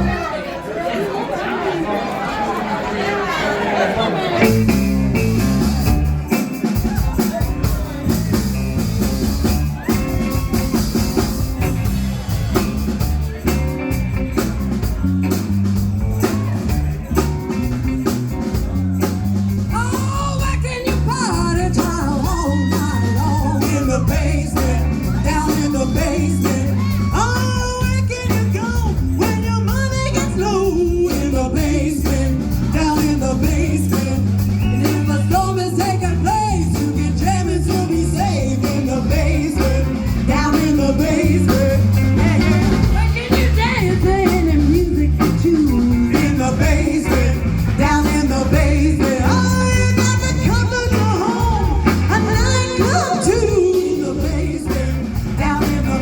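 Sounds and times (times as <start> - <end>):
live rock band playing: 4.3 - 56.0
woman singing: 19.7 - 56.0.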